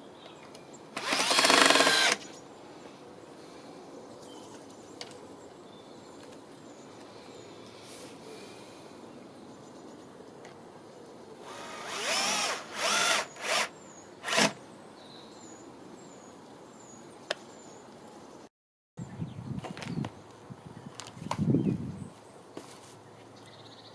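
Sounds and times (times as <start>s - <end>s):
power drill motor whine: 1.0s - 2.2s, 11.5s - 14.6s.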